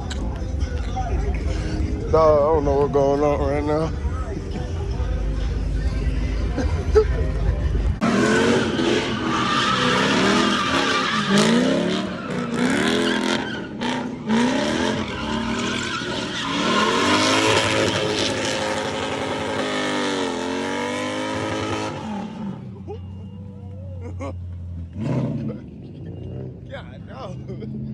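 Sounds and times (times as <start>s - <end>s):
car engine revving: 1.2s - 27.9s
tires squealing: 8.0s - 27.9s.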